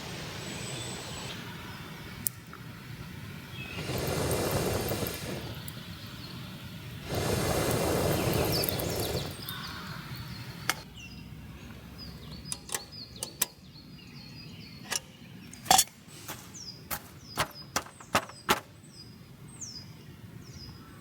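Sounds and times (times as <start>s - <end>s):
broad rushing noise: 0.0s - 2.1s, 2.7s - 5.7s, 6.6s - 10.8s
faint high bird chirps: 3.5s - 15.7s
sharp wooden cracks and knocks: 16.9s - 18.7s.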